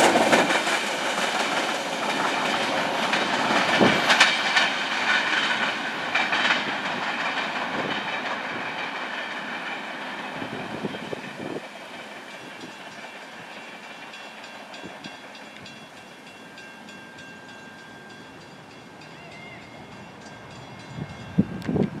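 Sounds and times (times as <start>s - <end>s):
wheels clicking over rails: 0.0s - 16.4s
freight train cars rolling: 0.0s - 22.0s.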